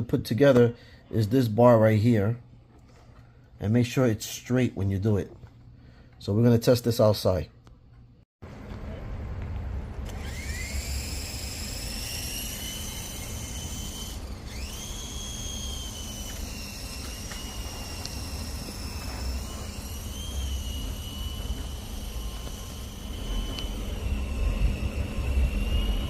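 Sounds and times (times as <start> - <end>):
toy helicopter motor whining: 10.0 - 26.0.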